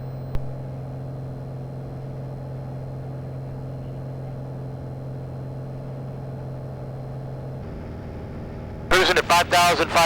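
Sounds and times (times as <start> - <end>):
propeller aircraft engine droning: 0.0 - 10.0.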